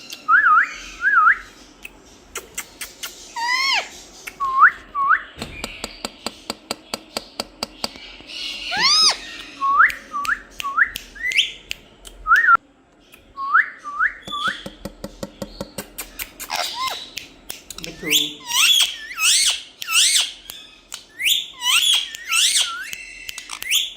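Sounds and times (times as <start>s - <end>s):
parrot whistling: 18.0s - 23.9s.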